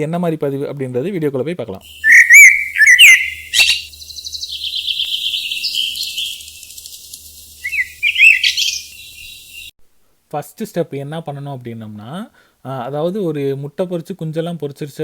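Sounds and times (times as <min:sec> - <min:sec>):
cockatiel whistled calls: 0:01.9 - 0:06.5, 0:07.6 - 0:09.7
cockatiel chattering chirps: 0:02.0 - 0:06.5, 0:07.6 - 0:09.1.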